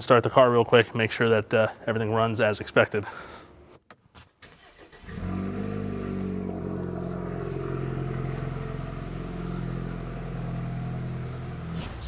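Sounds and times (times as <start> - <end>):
car engine starting and idling: 4.4 - 12.0.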